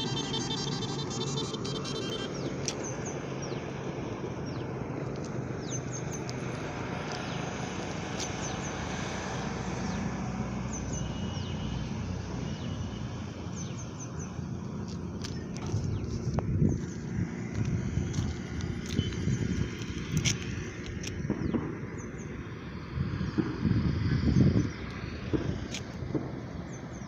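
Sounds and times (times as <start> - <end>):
birds chirping: 0.0 - 3.8.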